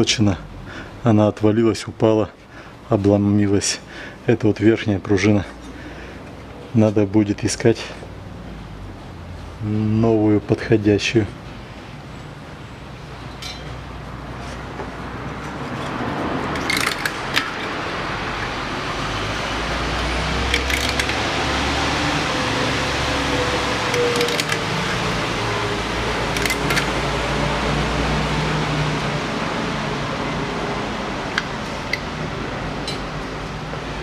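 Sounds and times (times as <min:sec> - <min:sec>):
mechanical whirr: 0:22.7 - 0:27.1
sharp clicks: 0:23.9 - 0:24.7, 0:26.3 - 0:27.0.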